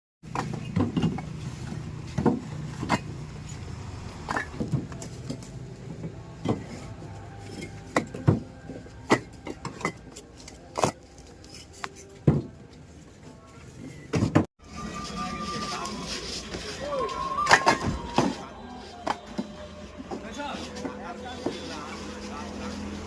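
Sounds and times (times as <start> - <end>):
sharp knocks and clanks: 0.2 - 3.2.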